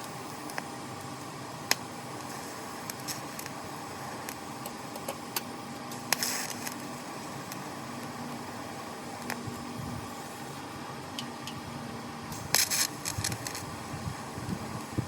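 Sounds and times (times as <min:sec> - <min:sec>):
welding ticks: 0:00.0 - 0:03.6, 0:04.2 - 0:08.4, 0:09.2 - 0:09.7, 0:12.3 - 0:13.7
welding hiss and hum: 0:00.0 - 0:15.0
welding crackling burst: 0:01.6 - 0:04.6, 0:05.9 - 0:10.6, 0:12.3 - 0:15.0.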